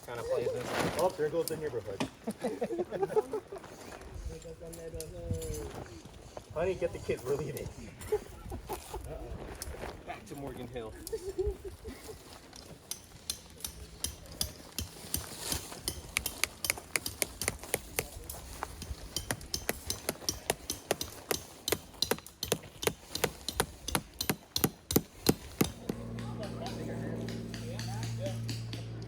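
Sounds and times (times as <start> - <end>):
sharp irregular clicks and knocks: 12.8 - 29.0.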